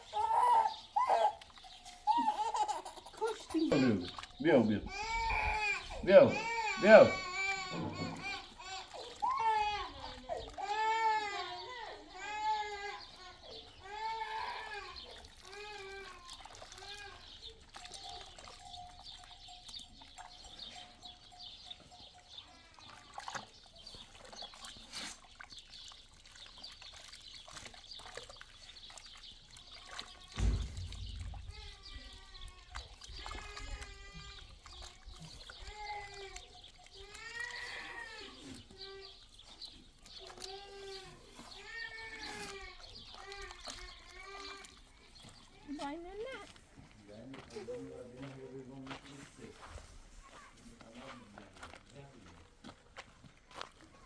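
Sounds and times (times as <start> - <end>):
livestock bleating: 4.1 - 9.0
low rumble: 30.4 - 32.6
thud: 30.4 - 33.4.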